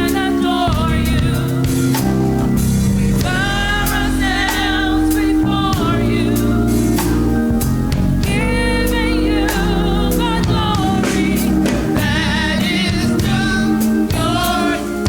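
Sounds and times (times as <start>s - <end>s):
gospel singing with vibrato: 0.0s - 15.0s
held bass notes: 0.0s - 15.0s
drum hits: 9.5s - 14.4s.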